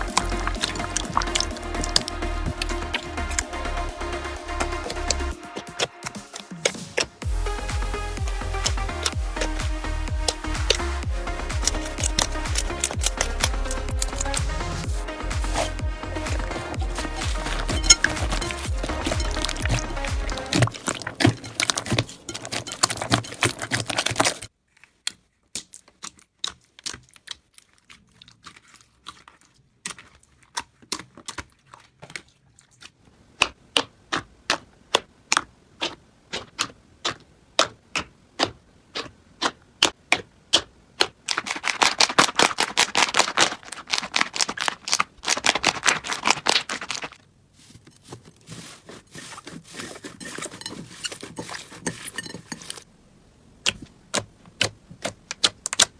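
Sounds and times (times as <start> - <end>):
slime crackling and popping: 0.0 - 3.4, 4.4 - 31.5, 33.4 - 47.2.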